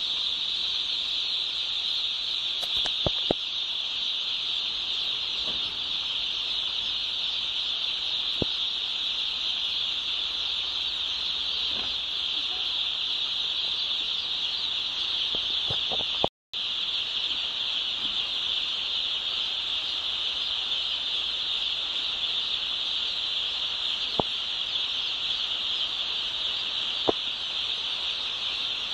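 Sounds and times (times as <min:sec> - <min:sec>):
chickens peeping chorus: 0:00.0 - 0:16.2, 0:16.8 - 0:28.9
sharp clicks: 0:02.6 - 0:03.4.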